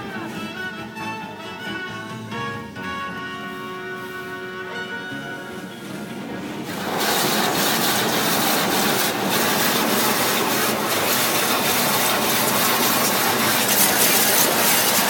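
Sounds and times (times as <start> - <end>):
car wash spraying water: 5.4 - 15.0.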